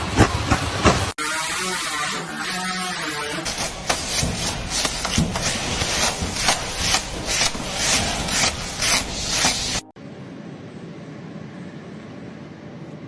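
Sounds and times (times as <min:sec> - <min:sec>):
scraping strokes: 0:03.4 - 0:09.9.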